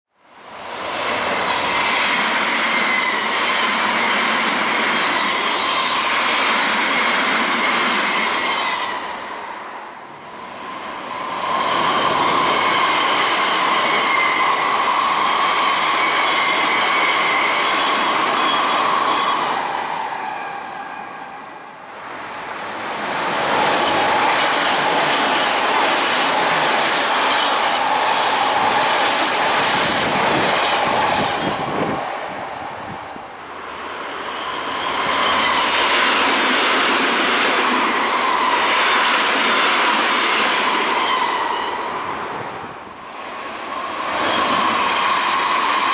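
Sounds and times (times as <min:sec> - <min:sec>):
electric trains passing: 0:00.3 - 0:45.9.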